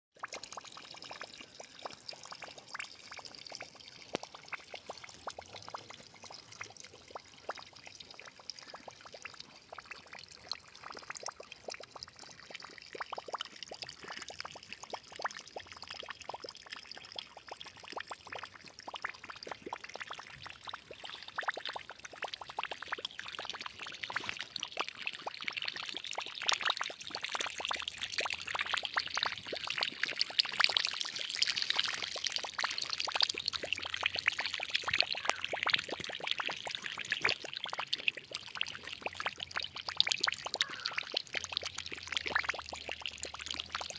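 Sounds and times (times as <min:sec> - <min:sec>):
water trickling and splashing: 0:00.2 - 0:43.9.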